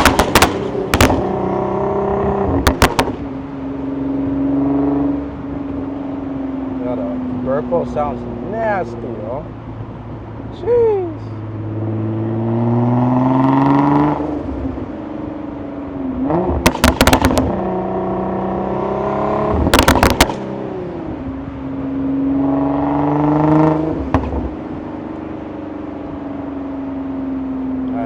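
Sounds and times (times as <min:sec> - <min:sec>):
exhaust pops and crackles: 0:00.0 - 0:01.4, 0:02.5 - 0:03.2, 0:16.6 - 0:17.6, 0:19.6 - 0:20.4, 0:24.1 - 0:24.6
car engine revving under load: 0:00.0 - 0:08.5, 0:11.3 - 0:27.7.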